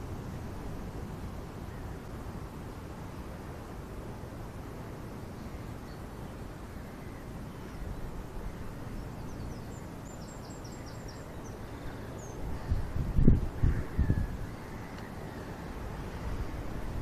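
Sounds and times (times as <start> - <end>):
outdoor background noise: 0.0 - 17.0
faint bird call: 13.6 - 15.6.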